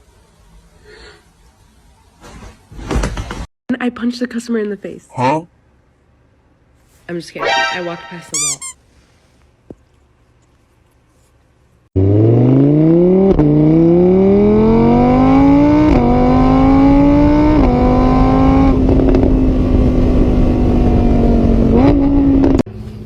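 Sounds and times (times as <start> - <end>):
vehicle engine accelerating hard: 12.0 - 23.0.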